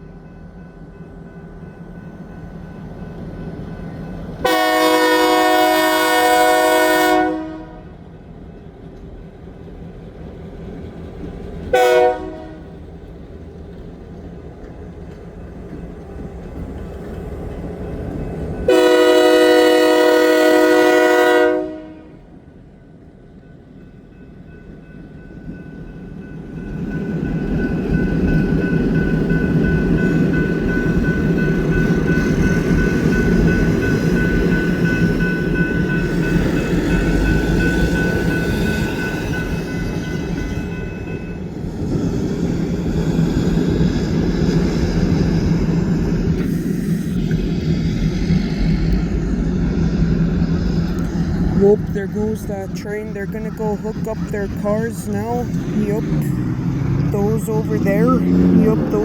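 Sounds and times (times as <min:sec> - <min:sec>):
locomotive horn blasts: 0:04.4 - 0:07.9, 0:11.7 - 0:12.7, 0:18.7 - 0:22.2
locomotive engine rumbling: 0:45.4 - 0:59.0.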